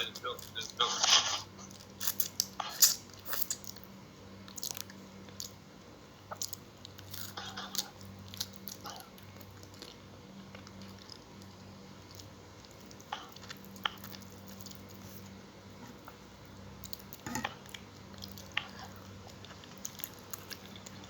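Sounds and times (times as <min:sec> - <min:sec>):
chewing: 0:00.0 - 0:05.6, 0:06.2 - 0:21.0
food crunching: 0:00.0 - 0:21.0
low steady hum: 0:00.0 - 0:21.0.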